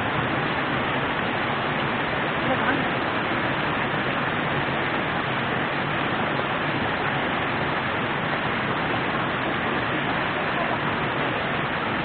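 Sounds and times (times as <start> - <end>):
flowing river water: 0.0 - 12.0.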